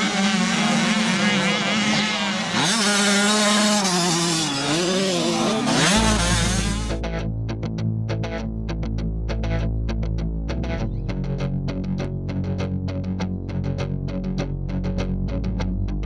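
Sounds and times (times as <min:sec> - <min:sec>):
motocross bike engine revving: 0:00.0 - 0:07.0
rock music: 0:05.6 - 0:16.0.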